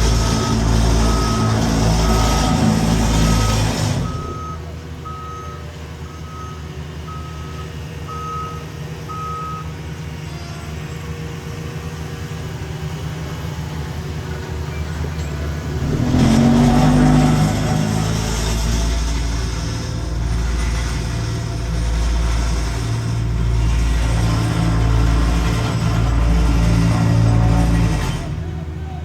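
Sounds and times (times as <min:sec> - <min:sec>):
diesel engines running: 0:00.0 - 0:29.0
backup alarm beeping: 0:00.1 - 0:09.8.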